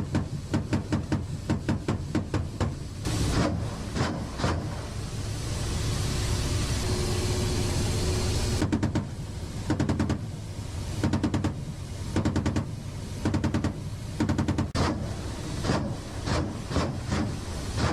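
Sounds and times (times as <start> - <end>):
low rumble: 3.0 - 9.6.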